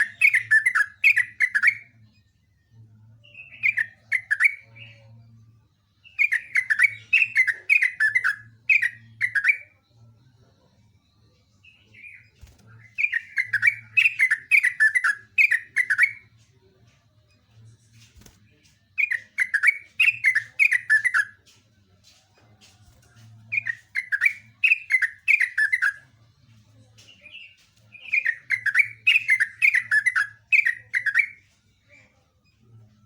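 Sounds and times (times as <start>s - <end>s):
bulbul singing: 0.0s - 2.3s, 6.0s - 9.7s, 11.6s - 16.3s, 17.9s - 26.2s, 27.0s - 31.6s.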